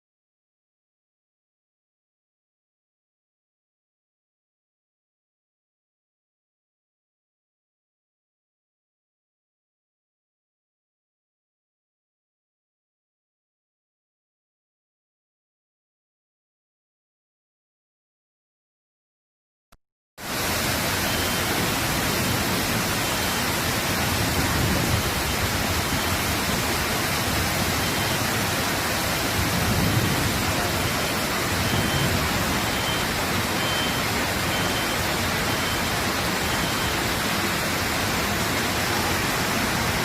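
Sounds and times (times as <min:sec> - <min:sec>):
floodwater rushing: 0:20.2 - 0:40.0.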